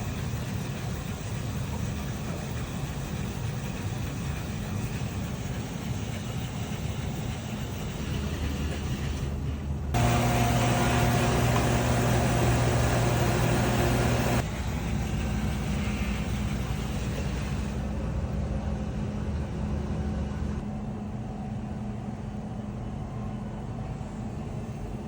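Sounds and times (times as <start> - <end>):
dishwasher humming: 9.9 - 14.4.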